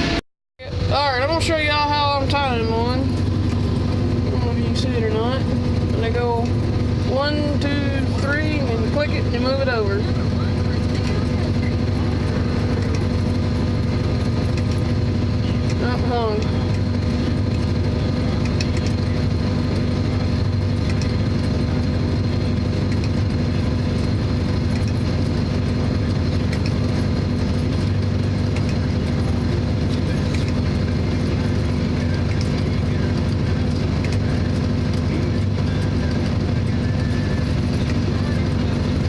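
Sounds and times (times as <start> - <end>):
hay baler working: 0.0 - 39.0
tractor engine running: 0.0 - 39.0.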